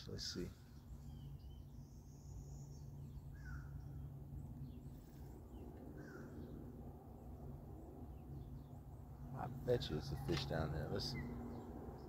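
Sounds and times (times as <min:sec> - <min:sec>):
low steady hum: 0:00.0 - 0:12.0
short bird calls: 0:03.3 - 0:03.9, 0:06.0 - 0:06.5.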